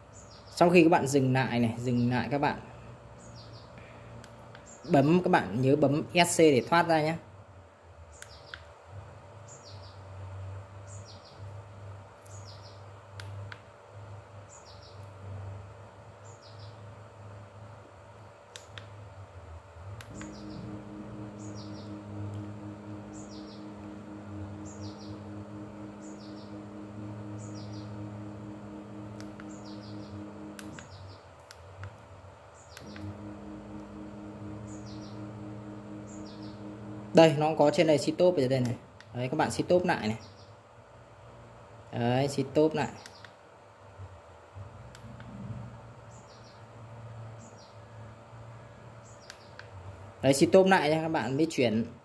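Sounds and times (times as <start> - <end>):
low hum: 19.9 - 31.1, 32.8 - 38.8.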